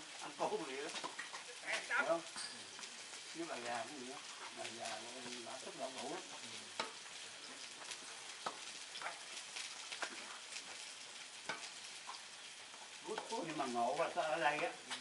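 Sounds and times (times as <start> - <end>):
food sizzling on barbecue: 0.0 - 15.0.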